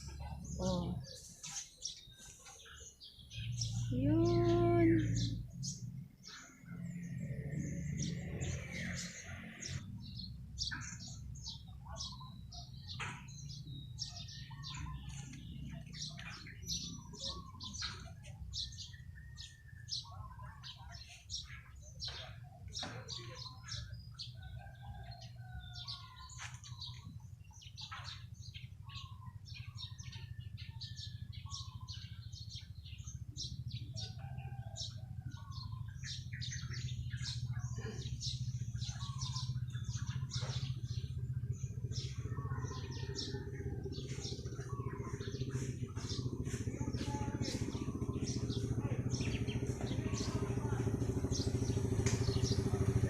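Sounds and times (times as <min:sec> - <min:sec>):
small birds chirping: 0:00.0 - 0:53.0
engine droning: 0:03.4 - 0:20.2, 0:35.2 - 0:53.0.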